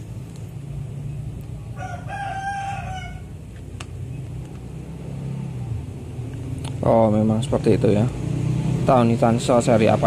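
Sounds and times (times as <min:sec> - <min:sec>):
rooster crowing: 0:01.7 - 0:03.4.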